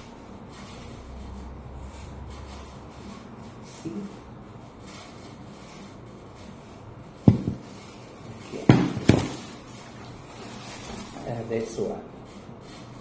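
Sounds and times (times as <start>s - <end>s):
dull thuds on hard surface: 7.3s - 7.8s, 8.6s - 9.6s.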